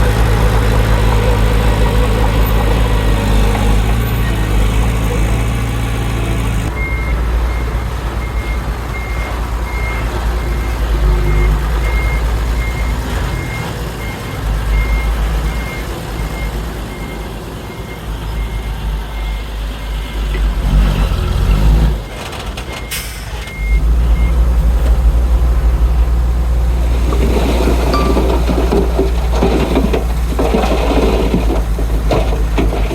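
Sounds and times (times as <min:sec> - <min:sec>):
diesel engine rumble: 0:00.0 - 0:32.9
reversing alarm beeping: 0:27.9 - 0:28.7.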